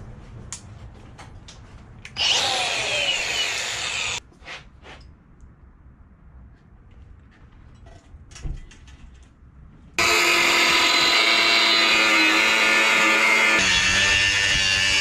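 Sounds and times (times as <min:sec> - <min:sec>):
power tool whine: 0:02.2 - 0:04.2, 0:10.0 - 0:15.0.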